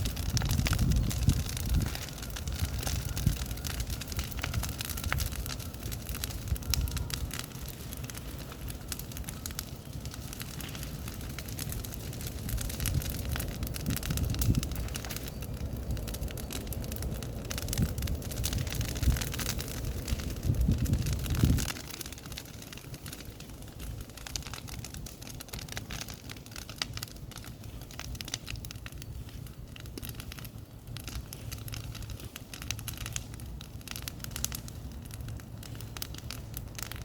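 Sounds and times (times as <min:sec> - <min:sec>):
wind on microphone: 0:00.0 - 0:07.4, 0:12.3 - 0:21.8
bonfire crackling and popping: 0:00.0 - 0:37.0.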